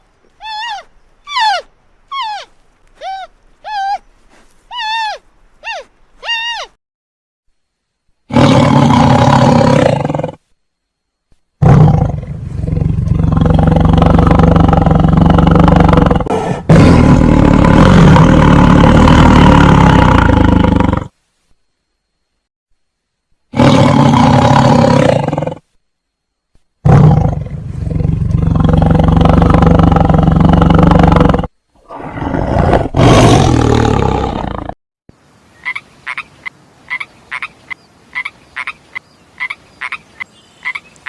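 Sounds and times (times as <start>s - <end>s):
short pitched animal calls: 0.4s - 4.1s, 4.7s - 6.8s.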